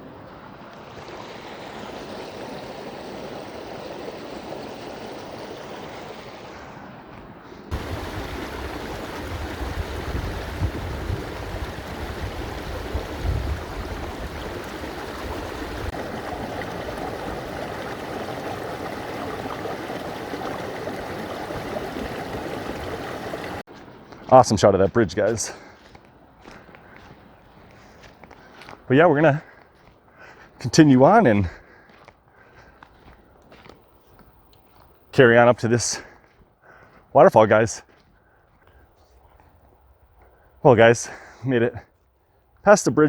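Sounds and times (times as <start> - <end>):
creek rushing: 7.7 - 23.7.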